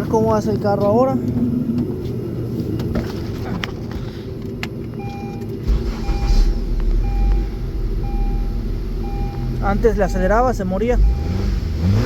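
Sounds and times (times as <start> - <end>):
car engine running: 0.0 - 12.0
two-tone warning chime beeping: 5.0 - 11.4.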